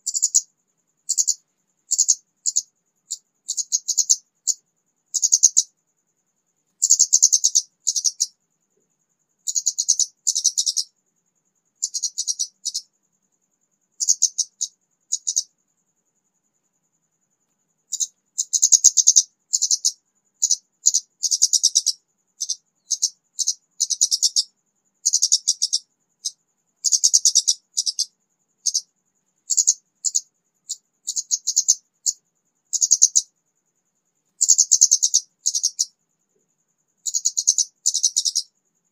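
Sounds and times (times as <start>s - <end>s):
bird chattering song: 0.0s - 0.5s, 1.1s - 5.7s, 6.8s - 8.4s, 9.5s - 11.0s, 11.8s - 12.9s, 14.0s - 15.5s, 17.9s - 28.9s, 29.5s - 33.3s, 34.4s - 35.9s, 37.0s - 38.5s.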